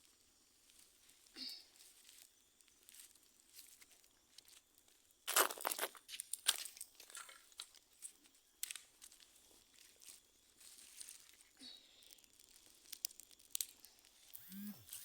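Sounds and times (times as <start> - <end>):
dry wood crackling: 7.4 - 14.4.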